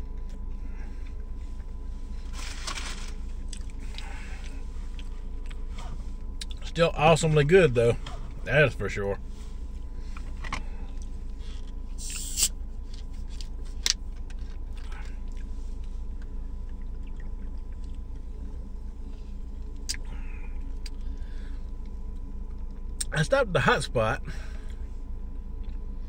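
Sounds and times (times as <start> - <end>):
car engine idling: 0.0 - 25.2
clicks and rustles from eating: 12.8 - 18.3.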